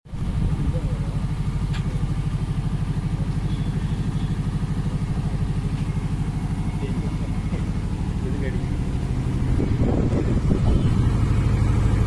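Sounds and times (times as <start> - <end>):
diesel engine idling: 0.1 - 12.0.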